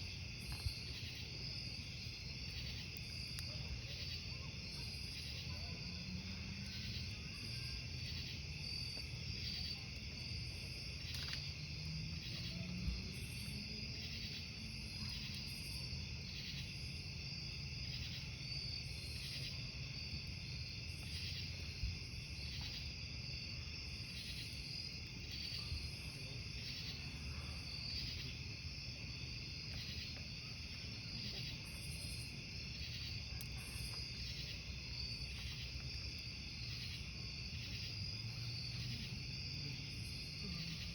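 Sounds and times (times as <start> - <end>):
burning wood popping: 0.0 - 4.3, 6.6 - 11.8
campfire rumble: 0.0 - 40.9
crickets chirping: 0.0 - 40.9.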